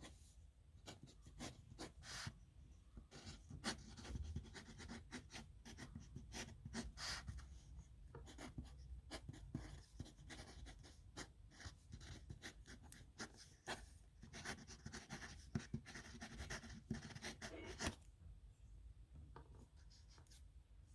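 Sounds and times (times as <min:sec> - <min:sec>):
pen scratching on paper: 0:03.1 - 0:07.5, 0:08.2 - 0:18.0.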